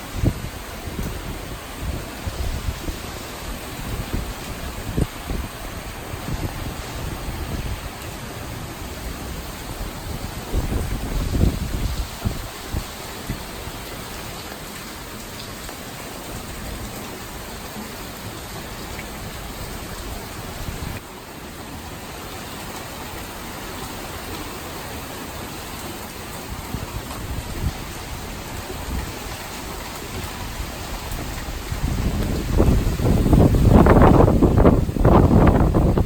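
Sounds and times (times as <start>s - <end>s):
wind buffeting microphone: 0.0s - 8.0s, 8.9s - 13.6s, 26.6s - 36.0s
heavy rain falling: 0.0s - 36.0s.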